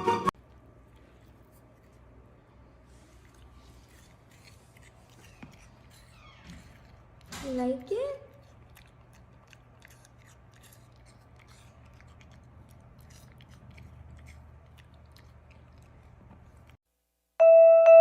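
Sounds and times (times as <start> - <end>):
puppy chewing crunching clicks: 3.3 - 16.8.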